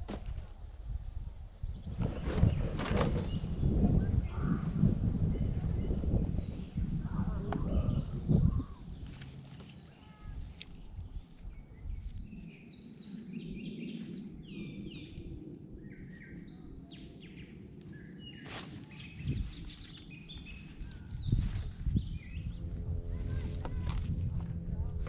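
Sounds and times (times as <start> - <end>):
low outdoor background rumble: 0.0 - 12.1, 19.6 - 25.0
small birds chirping: 5.3 - 23.8.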